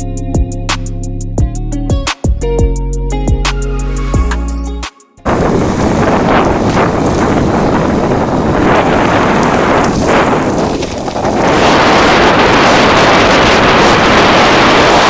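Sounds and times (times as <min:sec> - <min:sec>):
cicada drone: 0:05.3 - 0:15.0
wind rushing over microphone: 0:05.3 - 0:15.0.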